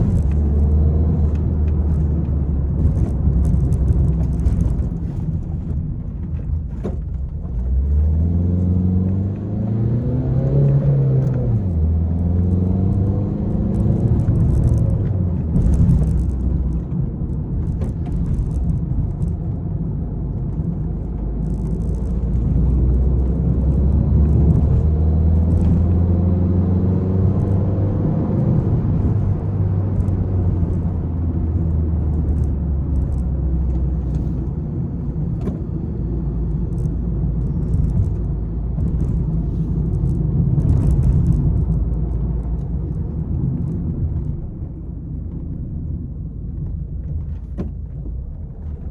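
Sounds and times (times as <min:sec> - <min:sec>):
car engine droning under load: 0:00.0 - 0:48.9.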